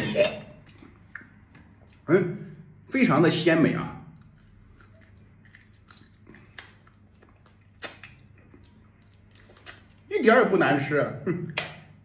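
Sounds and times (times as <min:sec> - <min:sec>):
faint chewing: 0:04.2 - 0:10.1.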